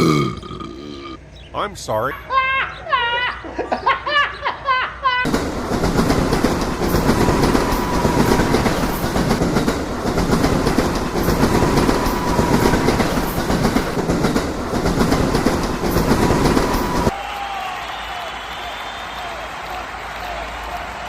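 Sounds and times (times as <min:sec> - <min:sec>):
train wheels rumbling on rails: 0:05.2 - 0:17.2
faint rail clatter: 0:05.3 - 0:17.1.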